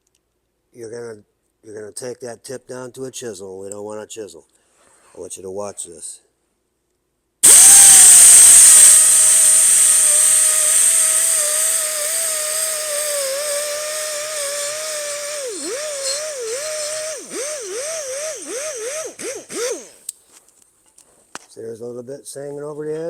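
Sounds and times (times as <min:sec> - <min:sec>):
hiss of air: 0:07.4 - 0:18.4
air die grinder whining: 0:07.4 - 0:20.0.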